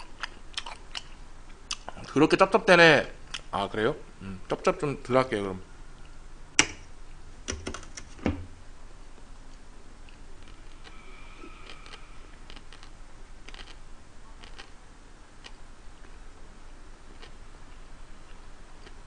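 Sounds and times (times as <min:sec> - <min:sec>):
open-mouthed chewing: 0:00.0 - 0:02.1, 0:10.1 - 0:13.8, 0:14.4 - 0:14.8, 0:17.1 - 0:19.0.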